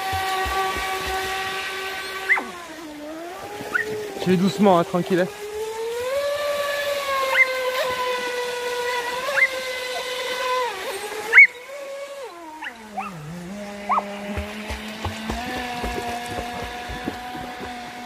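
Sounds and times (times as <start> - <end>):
rc boat motor whining: 0.0 - 18.0.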